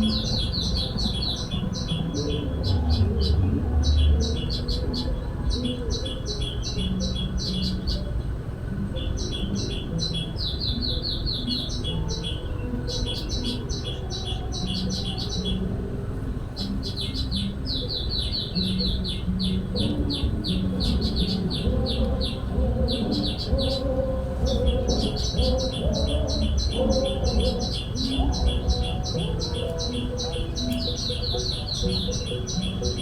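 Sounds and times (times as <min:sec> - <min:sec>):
wavering lower bird calls: 0:00.0 - 0:33.0
steady low rumble: 0:18.9 - 0:32.0.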